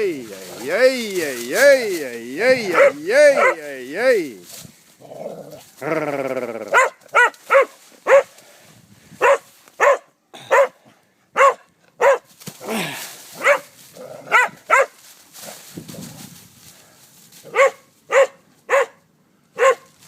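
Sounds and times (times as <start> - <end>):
dog drawn-out cry: 2.6 - 3.6, 6.6 - 8.3, 11.4 - 12.2, 14.2 - 14.9, 17.5 - 19.0, 19.6 - 19.9
dog barking: 2.7 - 3.6, 6.7 - 8.3, 9.2 - 12.3, 13.4 - 13.7, 14.3 - 15.0, 17.5 - 19.0, 19.6 - 19.9.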